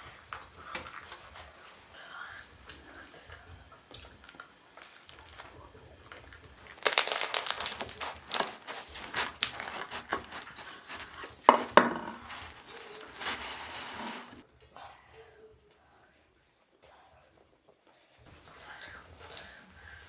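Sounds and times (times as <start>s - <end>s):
crinkling rustle of crumpling: 4.2s - 14.4s.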